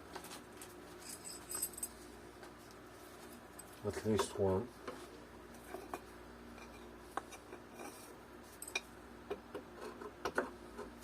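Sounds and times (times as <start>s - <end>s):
small metal hardware clinking: 1.0s - 1.9s.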